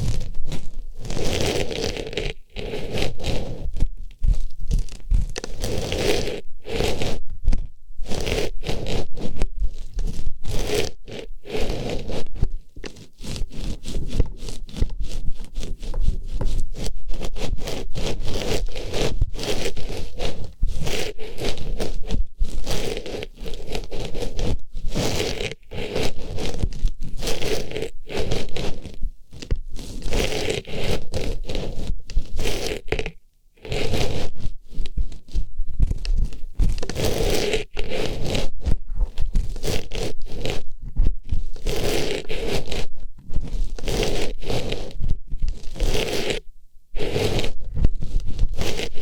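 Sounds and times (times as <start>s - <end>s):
scratchy rustling on microphone: 0.0s - 49.0s.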